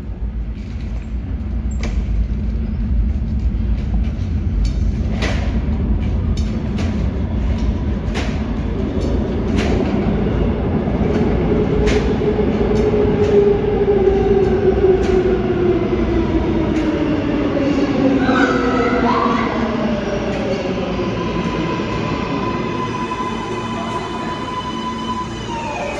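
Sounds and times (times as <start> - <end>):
train rumble: 0.0 - 25.9
train wheels clicking over rail joints: 0.4 - 17.6.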